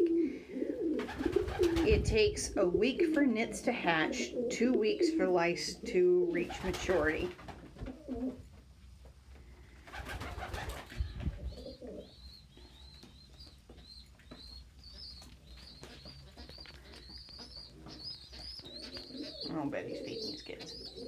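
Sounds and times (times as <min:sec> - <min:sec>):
pigeon squabs squeaking: 0:00.9 - 0:02.1, 0:09.9 - 0:21.0
rustling: 0:06.4 - 0:21.0.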